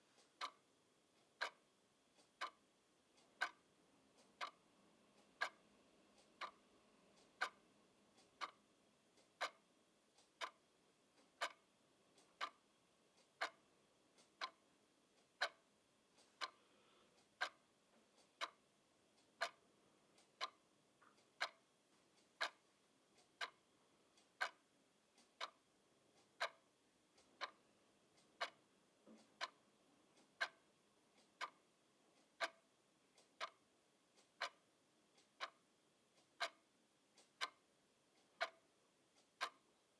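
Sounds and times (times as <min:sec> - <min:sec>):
clock ticking: 0:00.0 - 0:16.6, 0:17.2 - 0:39.9.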